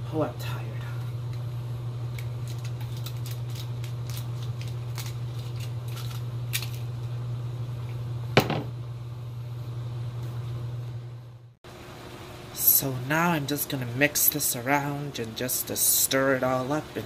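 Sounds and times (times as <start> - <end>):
low hum: 0.0 - 11.6
bottle knocking on counter: 8.4 - 8.7.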